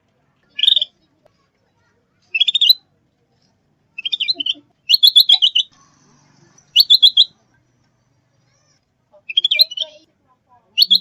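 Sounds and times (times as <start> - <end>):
songbird chirping: 0.6 - 1.0, 2.2 - 2.9, 3.9 - 5.8, 6.5 - 7.5, 9.2 - 10.1, 10.7 - 11.0.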